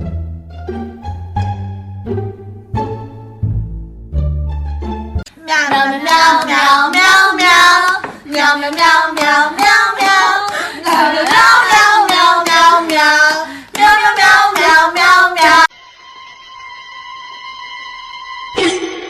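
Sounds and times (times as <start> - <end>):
high voice singing rhythmic tune: 5.3 - 15.7.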